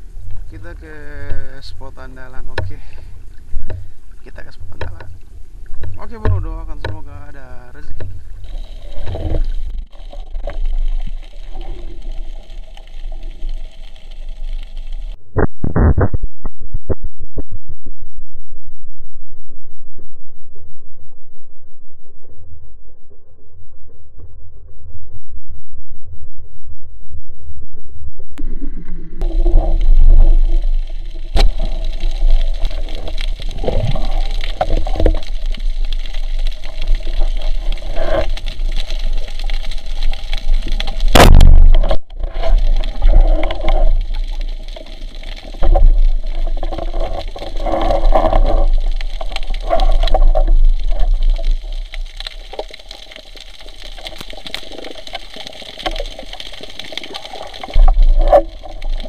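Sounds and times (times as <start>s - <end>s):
deep rumble of water: 0.0s - 15.2s, 16.3s - 59.0s
water sloshing and bubbling: 0.0s - 15.2s, 27.6s - 59.0s
sharp crack: 29.2s - 47.2s.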